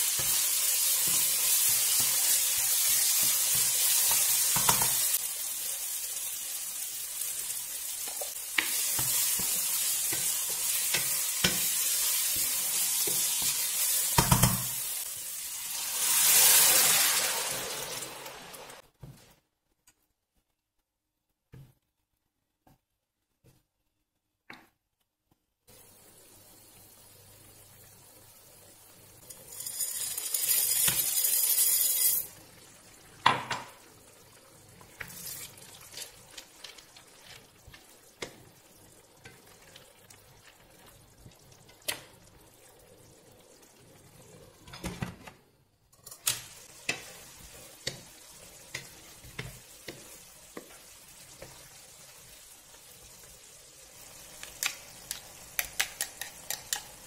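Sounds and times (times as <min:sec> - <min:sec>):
sauce sizzling in a pan: 0:00.0 - 0:18.8, 0:25.7 - 0:44.7, 0:46.1 - 0:57.0.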